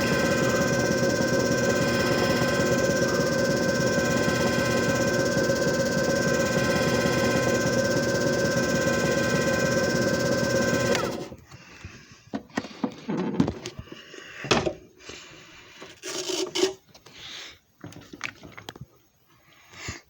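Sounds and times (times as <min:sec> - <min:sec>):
machine motor hum: 0:00.0 - 0:11.4.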